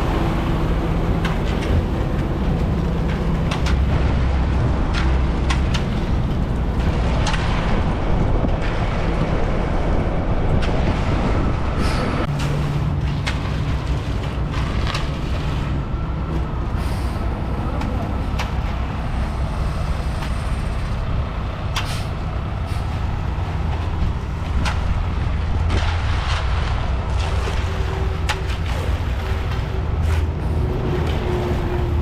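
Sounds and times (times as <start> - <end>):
diesel truck engine running: 0.0 - 32.0
sharp clanks and knocks: 0.1 - 9.5.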